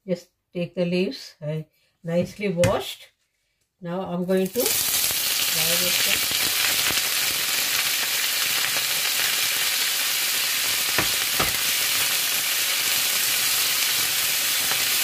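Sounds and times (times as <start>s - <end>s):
leaves sizzling in a frying pan: 4.4s - 15.0s
spatula knocking against pan: 11.0s - 11.6s.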